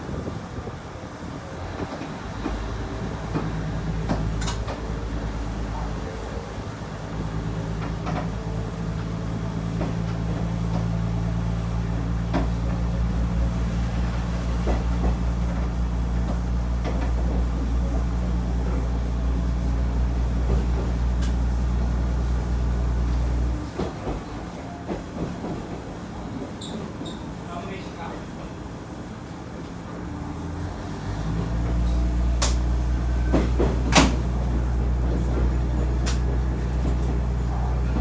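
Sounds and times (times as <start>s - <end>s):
train running noise: 0.0s - 38.0s
train wheels clicking and knocking: 1.7s - 6.0s, 7.2s - 27.4s, 31.2s - 38.0s
diesel engine droning: 30.1s - 38.0s.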